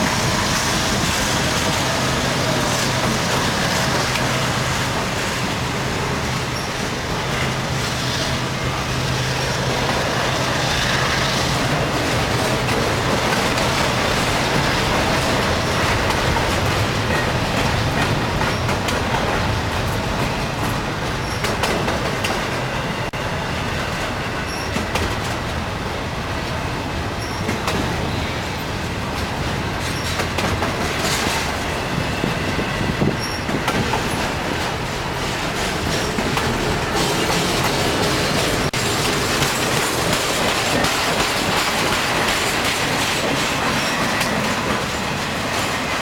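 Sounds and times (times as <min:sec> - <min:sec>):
train wheels rumbling on rails: 0:00.0 - 0:46.0
wheels clicking over rail joints: 0:09.0 - 0:22.7, 0:33.0 - 0:46.0.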